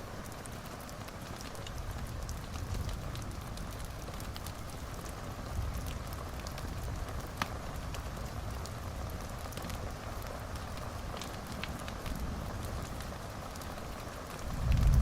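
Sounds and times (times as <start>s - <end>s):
fire snaps and pops: 0.0s - 15.0s
wood fire crackling: 0.0s - 15.0s
low steady rumble: 14.5s - 15.0s.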